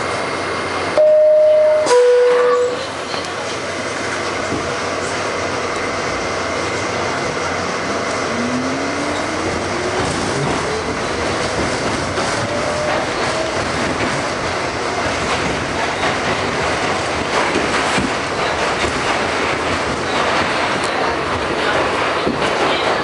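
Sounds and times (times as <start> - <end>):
rising train motor whine: 0.0 - 14.9
subway train rumble and hiss: 0.0 - 23.0.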